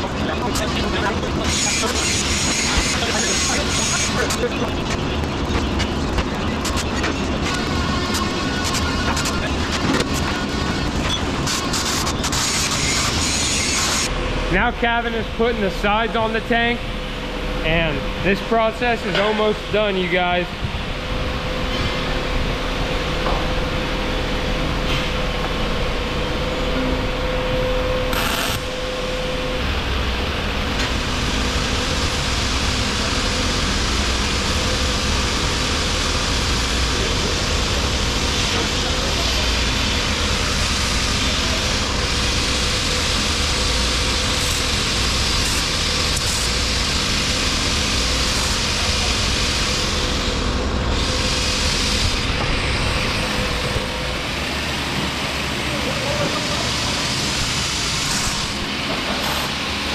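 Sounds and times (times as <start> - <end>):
welding hiss: 28.1 - 28.8, 40.0 - 50.2.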